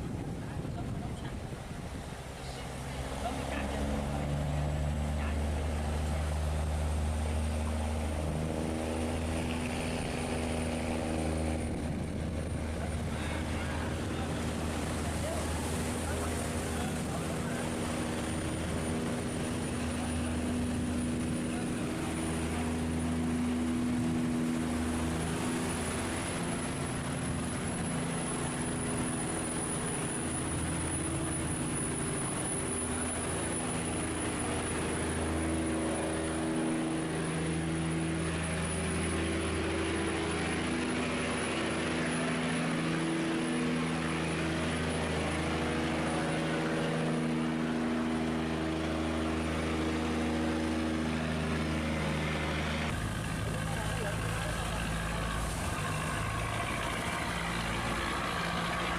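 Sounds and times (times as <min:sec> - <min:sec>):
ship engine running: 0:00.0 - 0:58.9
fast-flowing water rushing: 0:52.7 - 0:58.9.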